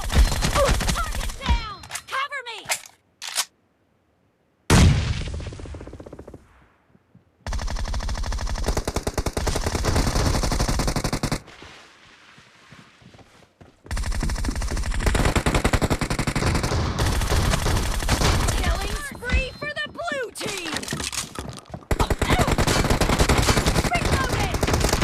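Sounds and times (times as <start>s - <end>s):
automatic gunfire: 13.9s - 19.1s, 21.9s - 25.0s.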